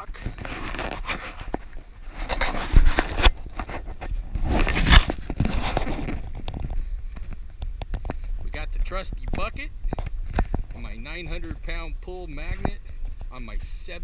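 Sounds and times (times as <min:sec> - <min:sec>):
wind rumble on microphone: 0:00.0 - 0:14.0
scraping: 0:00.2 - 0:13.4
footsteps and gear thumps: 0:00.4 - 0:11.8.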